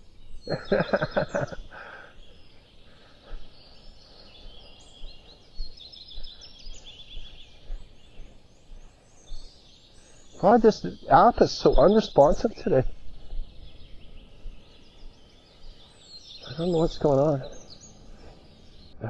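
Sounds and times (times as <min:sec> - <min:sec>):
songbirds chirping and trilling: 0:00.0 - 0:19.0
person's voice: 0:10.4 - 0:12.9, 0:16.5 - 0:17.5.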